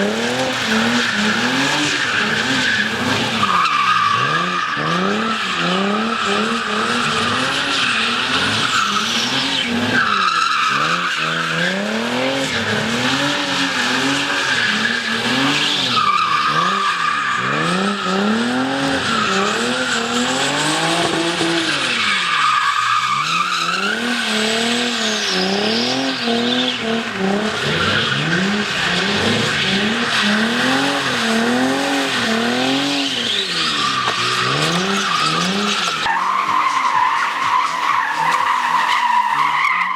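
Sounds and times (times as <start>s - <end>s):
car engine revving: 0.0s - 39.9s
tyres squealing: 27.6s - 39.9s.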